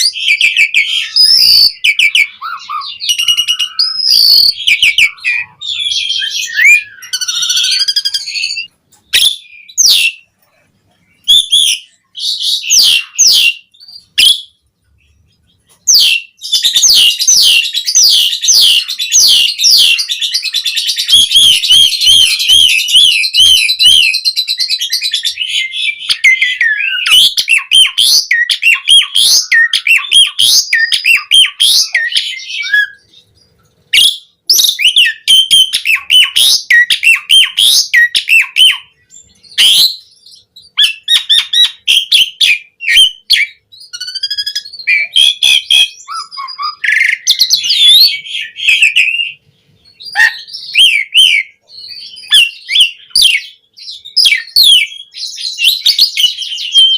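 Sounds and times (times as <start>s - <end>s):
starling singing whistles and clicks: 0.0s - 10.3s, 15.4s - 56.9s.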